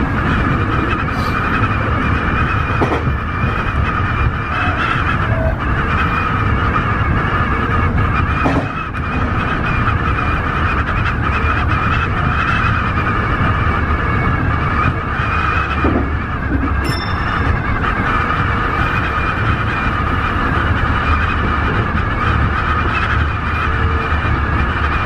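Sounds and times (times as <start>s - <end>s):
electric train rumbling: 0.0s - 25.0s
high tones: 16.8s - 19.8s.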